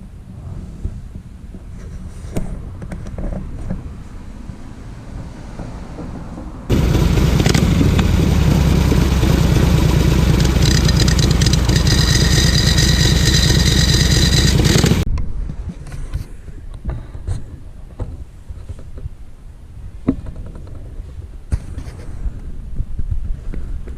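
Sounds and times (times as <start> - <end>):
motorcycle engine pulsing: 6.7 - 15.0.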